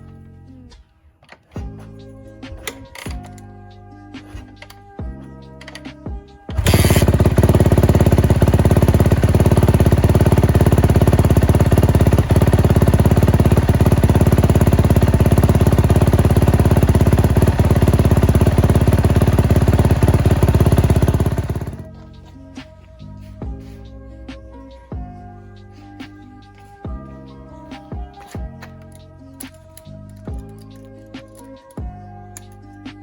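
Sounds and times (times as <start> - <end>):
motorcycle engine running: 6.5 - 22.4.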